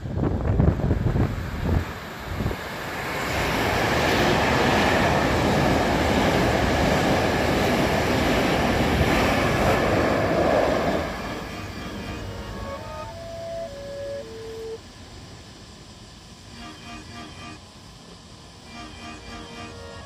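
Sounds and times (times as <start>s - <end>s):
reversed train rumble: 0.0s - 20.0s.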